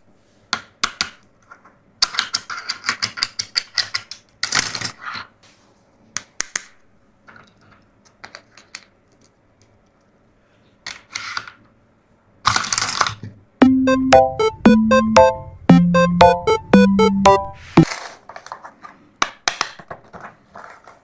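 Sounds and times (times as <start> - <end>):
plastic toys clicking and rattling: 2.0 - 5.0, 12.5 - 13.2.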